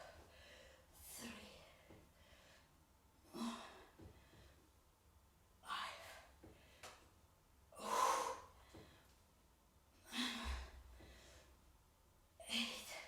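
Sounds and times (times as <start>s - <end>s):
woman breathing heavily: 0.0s - 4.8s, 5.6s - 7.1s, 7.7s - 9.3s, 10.0s - 11.7s.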